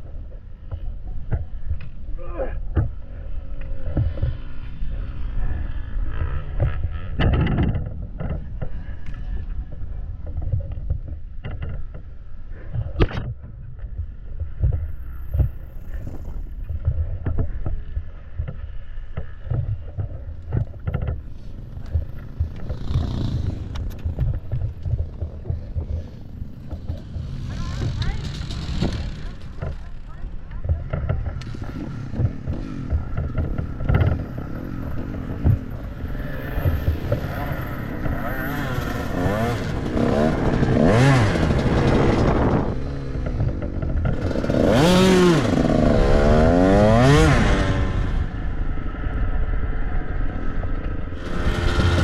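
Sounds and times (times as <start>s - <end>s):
wind buffeting microphone: 0.0s - 52.0s.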